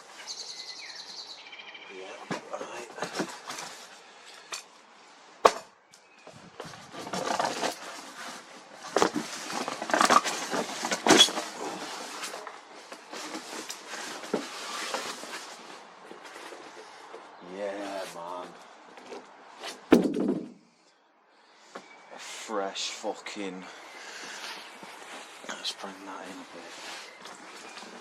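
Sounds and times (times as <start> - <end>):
cardboard and plastic rustling: 2.3 - 4.0, 6.4 - 19.8, 24.2 - 28.0.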